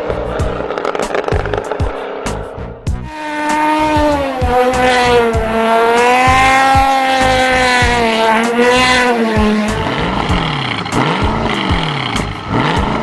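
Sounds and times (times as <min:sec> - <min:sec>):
car engine at high revs: 0:03.1 - 0:13.0.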